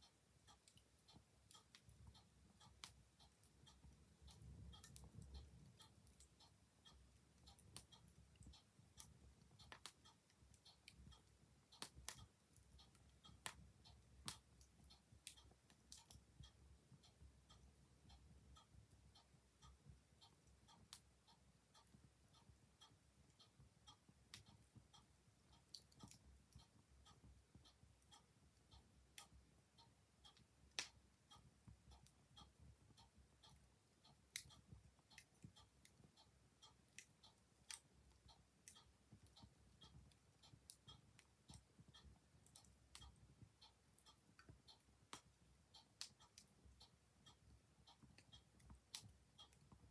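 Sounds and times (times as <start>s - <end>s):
clock ticking: 0.0s - 49.9s.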